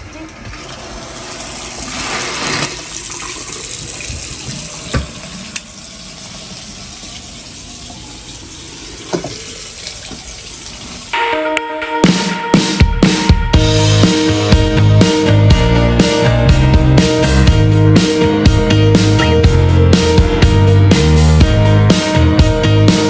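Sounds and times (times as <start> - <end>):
faucet water running into basin: 0.0 - 11.2.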